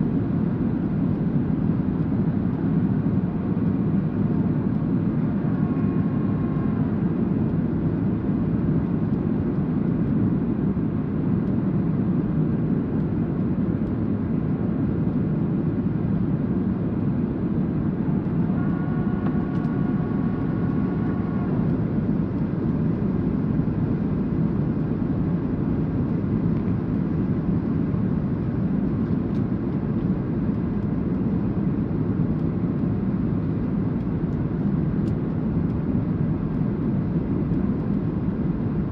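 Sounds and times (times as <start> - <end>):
airplane cabin engine noise: 0.0 - 38.9
faint high whine: 17.4 - 24.2.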